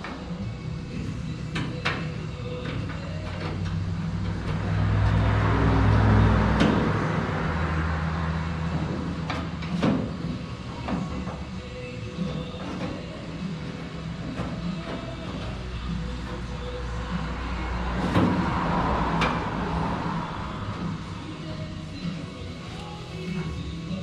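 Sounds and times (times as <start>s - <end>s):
low mechanical drone: 0.0s - 24.0s.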